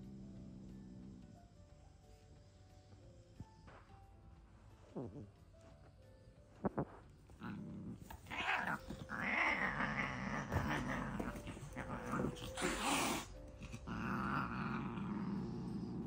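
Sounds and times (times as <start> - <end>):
cats scuffling: 6.9 - 12.8
cat growling and hissing: 7.4 - 16.0.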